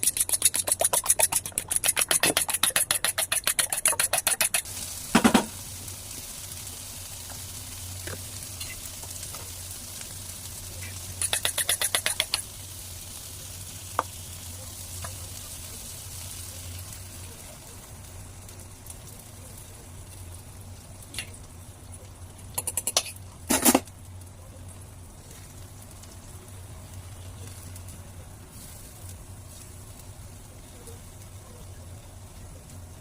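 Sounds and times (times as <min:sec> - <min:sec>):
food sizzling in a pan: 0:00.0 - 0:33.0
sharp clicks and knocks: 0:11.2 - 0:12.4.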